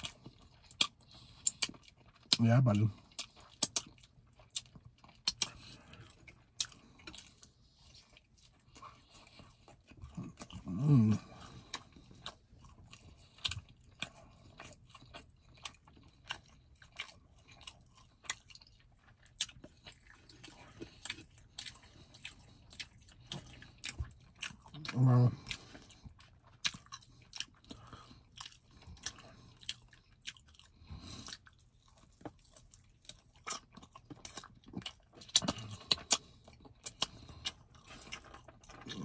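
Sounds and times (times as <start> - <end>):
person chewing and smacking: 0.0 - 39.0.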